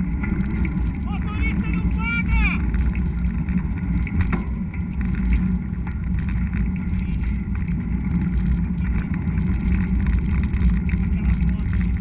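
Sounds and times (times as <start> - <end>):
bike riding noise: 0.0 - 12.0
wind rumble: 0.0 - 12.0.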